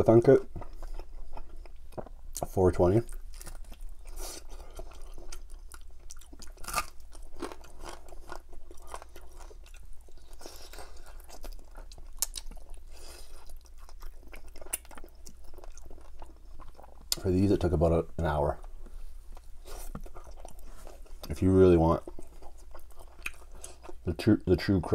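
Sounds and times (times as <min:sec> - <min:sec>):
crunching chicken: 0:00.1 - 0:17.5.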